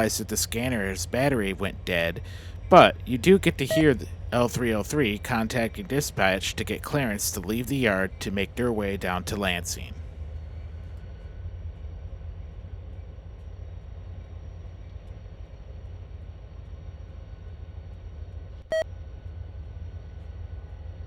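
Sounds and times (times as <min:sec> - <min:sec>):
steady low rumble: 0:00.0 - 0:21.0
short high beep: 0:03.7 - 0:04.0.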